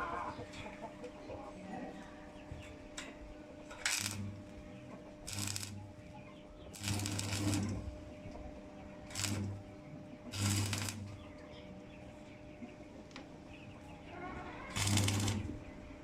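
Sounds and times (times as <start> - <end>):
welding arc crackling: 3.8 - 4.4, 5.3 - 5.8, 6.8 - 7.8, 9.1 - 9.6, 10.3 - 11.2, 14.7 - 15.5
welder hum: 3.8 - 4.5, 5.3 - 5.9, 6.7 - 7.9, 9.1 - 9.7, 10.3 - 11.2, 14.7 - 15.6.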